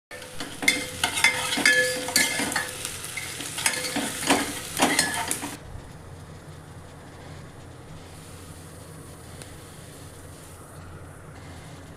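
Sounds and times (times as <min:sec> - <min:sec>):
food sizzling: 0:00.1 - 0:05.6
metal spoon scraping metal pot: 0:00.1 - 0:05.6.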